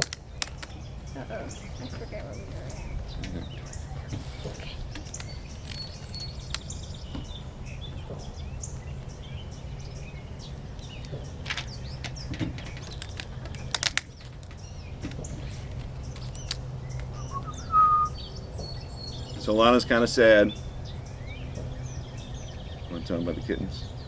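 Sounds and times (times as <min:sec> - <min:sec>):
sharp snaps: 0:00.0 - 0:00.8, 0:15.1 - 0:18.2
low outdoor rumble: 0:00.0 - 0:24.0
songbirds chirping and trilling: 0:00.0 - 0:24.0.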